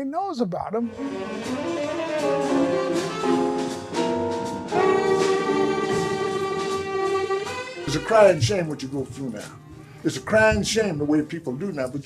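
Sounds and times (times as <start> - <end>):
jazz band playing: 0.8 - 12.0
horn holding long notes: 0.9 - 9.5.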